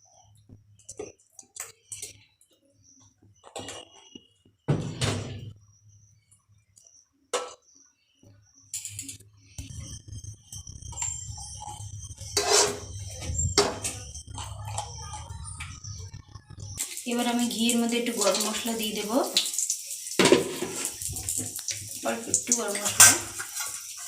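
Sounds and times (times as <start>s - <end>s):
steady low hum: 9.0s - 16.8s.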